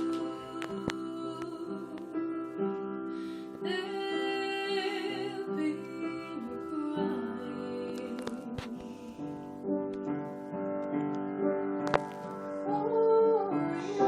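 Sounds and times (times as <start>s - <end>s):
woman singing: 0.0s - 2.8s, 3.5s - 9.5s, 12.6s - 14.0s
piano accompaniment: 0.0s - 14.0s.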